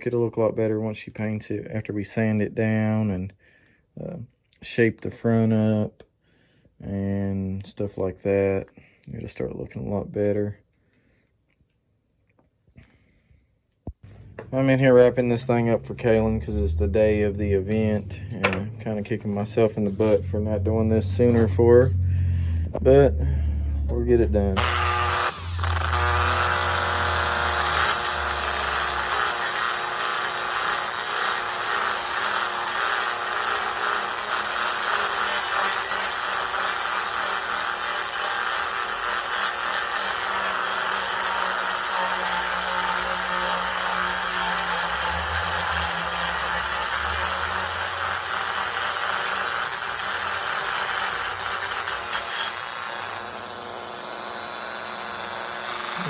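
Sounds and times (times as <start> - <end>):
rotary tool grinding wood: 23.9 - 56.0.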